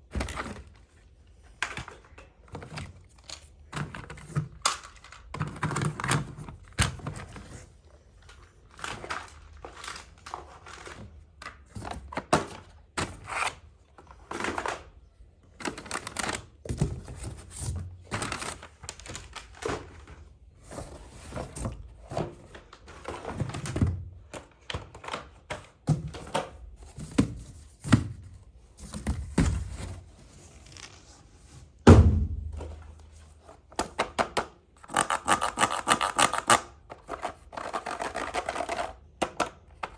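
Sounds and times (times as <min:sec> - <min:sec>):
loud thump: 0:31.9 - 0:32.7.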